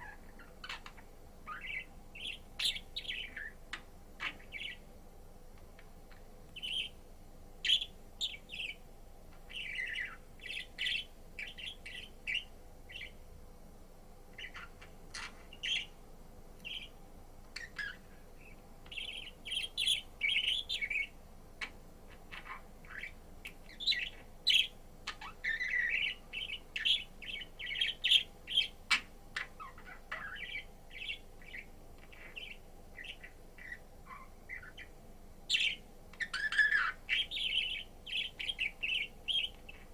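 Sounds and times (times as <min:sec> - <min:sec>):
budgerigar chirping and warbling: 0:00.0 - 0:03.6, 0:04.2 - 0:04.8, 0:07.6 - 0:08.8, 0:09.5 - 0:13.2, 0:14.4 - 0:15.9, 0:16.7 - 0:16.9, 0:17.6 - 0:18.0, 0:18.9 - 0:23.1, 0:23.7 - 0:34.9, 0:35.5 - 0:39.9
faint steady hum: 0:00.0 - 0:39.9.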